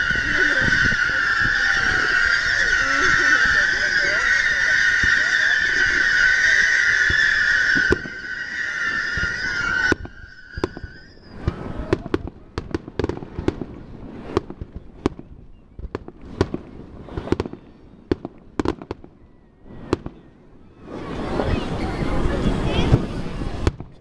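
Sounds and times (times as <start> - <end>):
whistling firework: 0.0 - 24.0
firework cracks and pops: 8.9 - 19.1.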